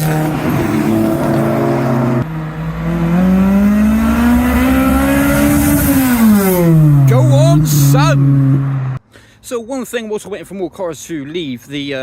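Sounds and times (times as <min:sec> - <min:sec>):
car engine accelerating hard: 0:00.0 - 0:09.0.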